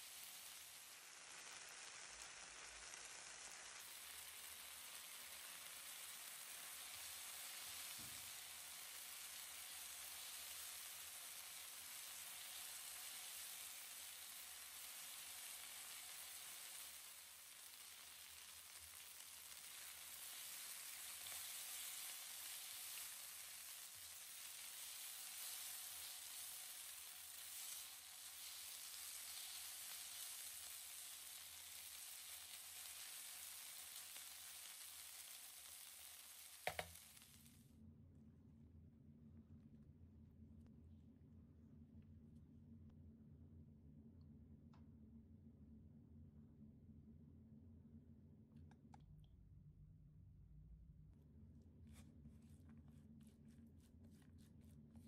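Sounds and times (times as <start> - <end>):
food sizzling in a pan: 0.0 - 37.6.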